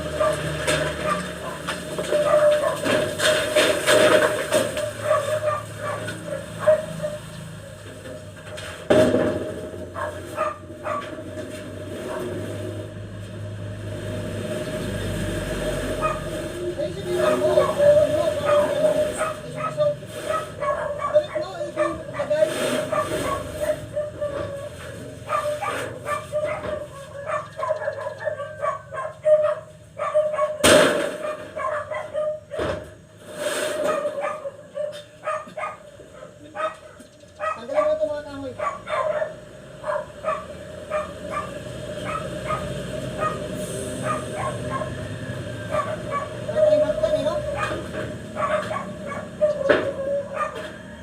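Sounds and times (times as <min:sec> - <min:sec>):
dog barking: 0:00.1 - 0:02.9, 0:04.9 - 0:07.3, 0:09.9 - 0:11.1, 0:12.0 - 0:12.4, 0:16.0 - 0:16.4, 0:17.1 - 0:30.6, 0:31.2 - 0:32.8, 0:33.8 - 0:45.1, 0:45.7 - 0:46.7, 0:47.4 - 0:50.9.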